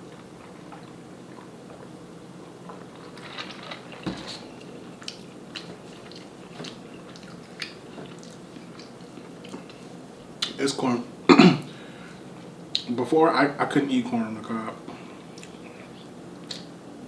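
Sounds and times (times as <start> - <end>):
chewing corn on the cob: 0.1 - 10.6.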